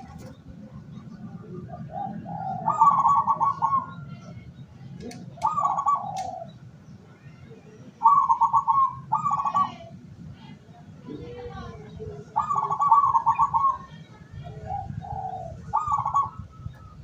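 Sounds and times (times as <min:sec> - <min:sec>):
dove cooing in trills: 0:00.0 - 0:04.1, 0:05.2 - 0:06.6, 0:07.9 - 0:10.0, 0:11.1 - 0:17.0.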